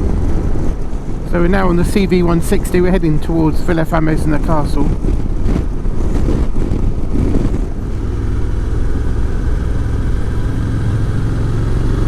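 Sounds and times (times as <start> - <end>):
motorcycle engine droning: 4.9 - 12.0.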